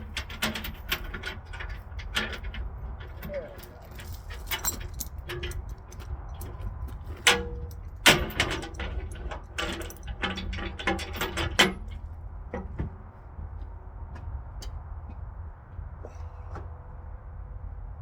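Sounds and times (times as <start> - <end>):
metallic clanks and rattles: 0.0 - 13.1
skid steer engine rumbling: 0.0 - 18.0.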